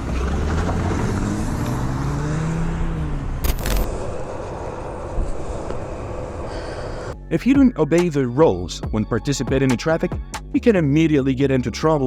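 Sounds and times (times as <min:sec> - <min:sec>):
vehicle engine rising and falling: 0:00.0 - 0:07.1
low traffic rumble: 0:00.0 - 0:07.2.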